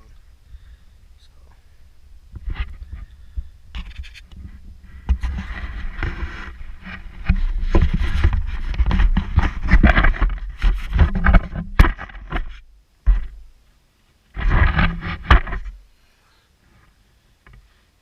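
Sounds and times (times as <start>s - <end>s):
handling knocks clicks and scrapes: 2.3s - 13.4s, 14.4s - 15.8s.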